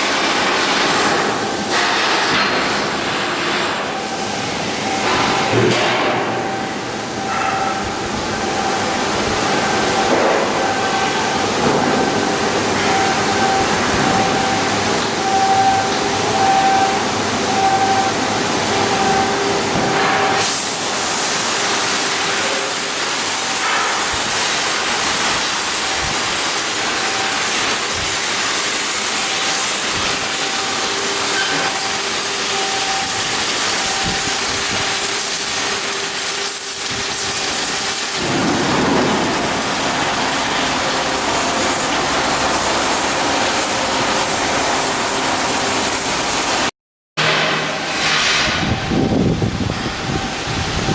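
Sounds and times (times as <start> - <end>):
loud steady hissing: 18.9 - 46.7.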